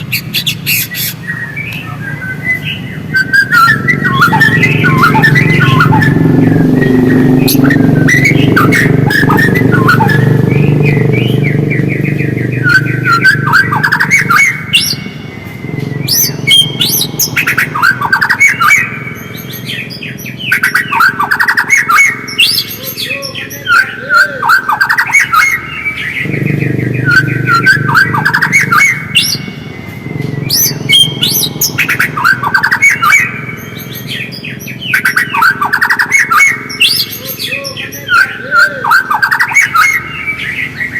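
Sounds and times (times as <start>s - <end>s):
songbird singing: 0.0s - 40.9s
low rumble: 26.2s - 32.2s.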